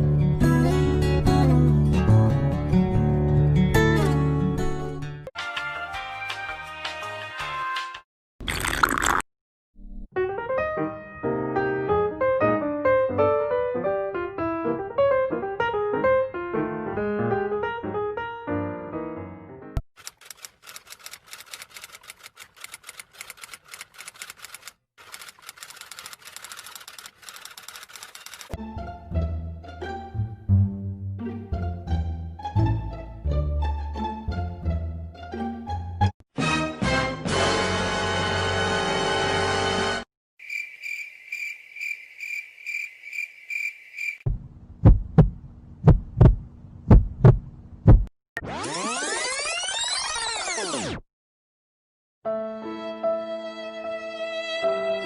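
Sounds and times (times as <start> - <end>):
crickets chirping: 40.4 - 44.3
heartbeat thumps: 44.3 - 48.1.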